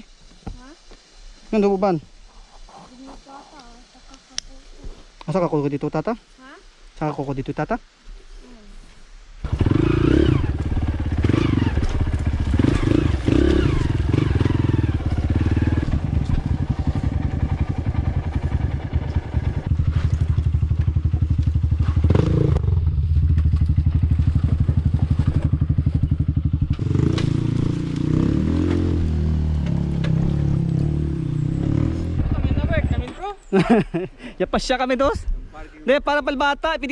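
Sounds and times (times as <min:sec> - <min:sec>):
dirt bike engine: 0:09.4 - 0:33.7.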